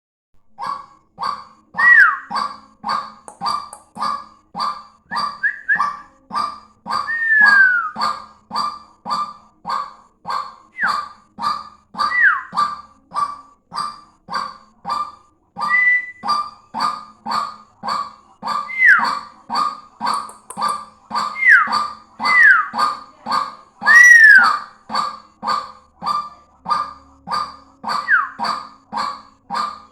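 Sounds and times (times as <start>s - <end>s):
waterhen calling: 0.6s - 29.9s
whistled notes sliding down: 5.4s - 6.0s, 7.1s - 8.0s, 12.1s - 12.5s, 15.7s - 16.2s.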